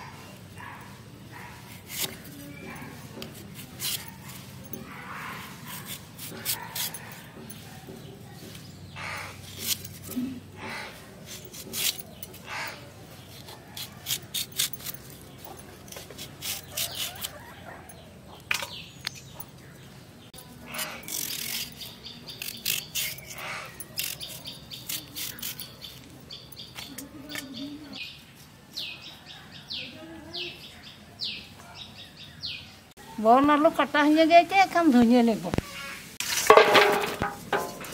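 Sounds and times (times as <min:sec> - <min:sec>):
birds chirping: 0:00.0 - 0:33.7
blade cutting potatoes: 0:05.6 - 0:07.6.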